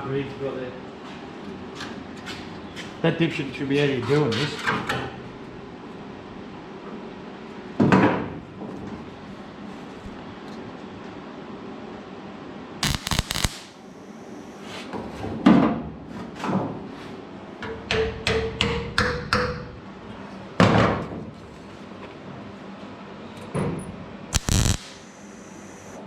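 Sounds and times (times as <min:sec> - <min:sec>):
welding bursts: 0:12.8 - 0:14.1, 0:24.4 - 0:26.0.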